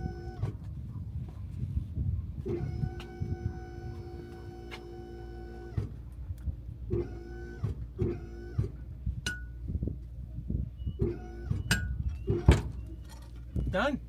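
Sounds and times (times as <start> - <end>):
crane motor whining: 0.0 - 0.8, 2.4 - 9.8, 10.5 - 13.7
clunks and knocks: 5.6 - 10.0, 10.9 - 13.8.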